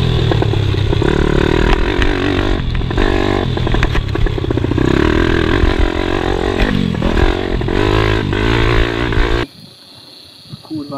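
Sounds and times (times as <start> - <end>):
motorbike engine revving: 0.0 - 9.5.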